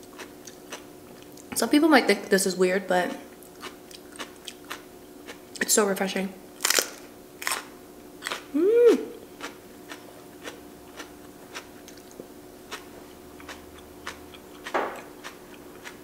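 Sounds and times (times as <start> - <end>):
crunchy chewing of raw pepper: 0.0 - 1.5, 3.3 - 5.6, 6.6 - 16.0
person humming: 8.5 - 9.2.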